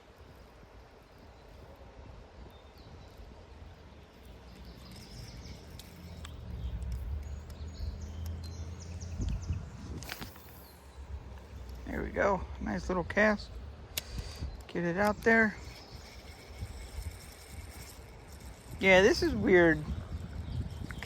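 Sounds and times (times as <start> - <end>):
faint bird chirps: 2.4 - 11.2.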